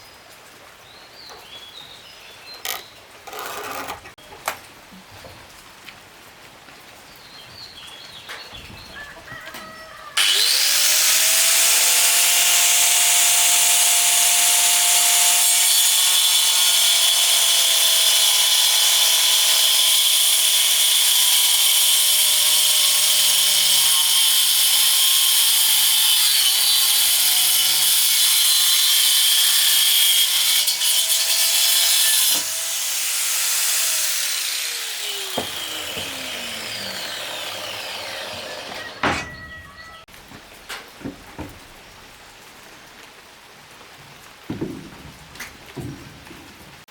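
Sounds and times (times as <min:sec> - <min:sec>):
power saw cutting wood: 0:10.2 - 0:40.1
saw motor whine: 0:34.0 - 0:39.6.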